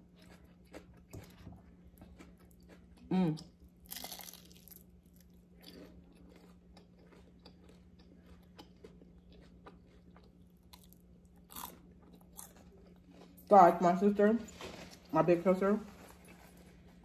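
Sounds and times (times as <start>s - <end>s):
crunchy chewing: 0.0s - 13.5s.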